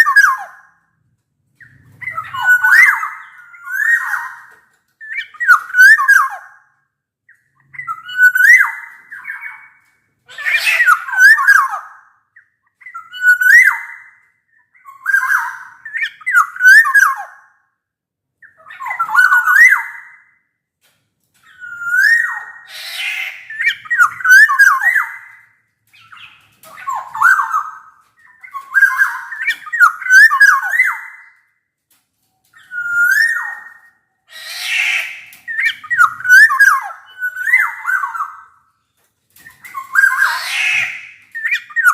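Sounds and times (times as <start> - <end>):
bird singing fluty whistled phrases: 1.6 - 6.5, 7.6 - 9.8, 12.8 - 17.4, 21.5 - 25.4, 26.0 - 31.3, 32.6 - 38.4.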